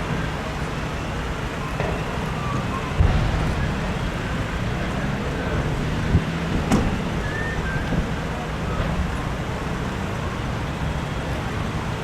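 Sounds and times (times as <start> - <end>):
road noise: 0.0 - 12.0
vehicle engines running: 0.0 - 12.0
wind on microphone: 2.7 - 9.5.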